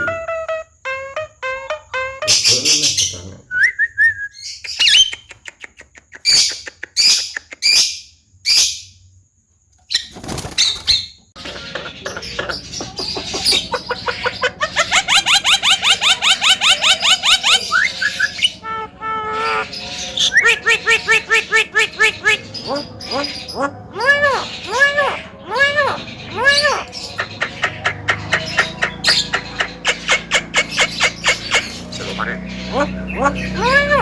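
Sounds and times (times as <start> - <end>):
bird whistling and screeching: 9.9 - 34.0
bird chattering: 10.0 - 34.0.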